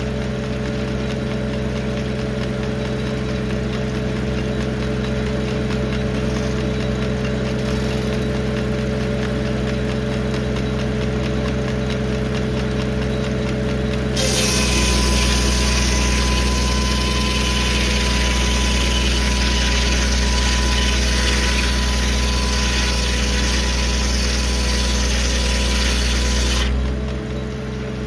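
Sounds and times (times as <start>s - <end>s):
tractor engine running: 0.0s - 28.0s
saw blade hissing through log: 14.2s - 26.8s.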